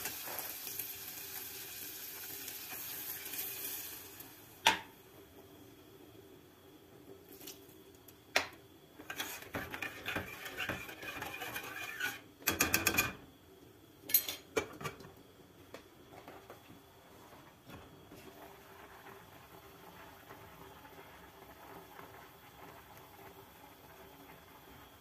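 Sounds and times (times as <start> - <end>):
frying hiss: 0.0 - 25.0
dishes and cutlery clinking: 14.1 - 15.0.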